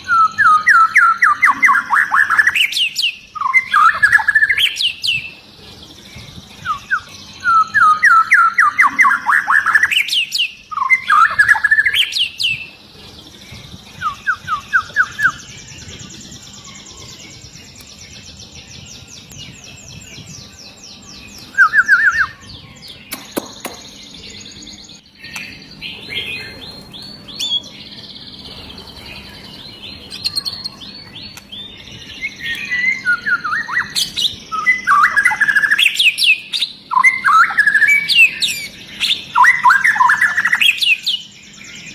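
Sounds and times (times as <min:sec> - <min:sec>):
bird singing rapid repeated notes: 0:00.0 - 0:41.9
sharp click: 0:22.9 - 0:24.0.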